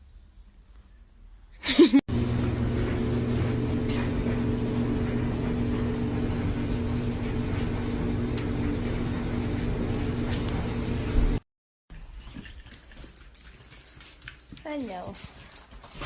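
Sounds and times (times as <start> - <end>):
motor humming: 2.1 - 11.4.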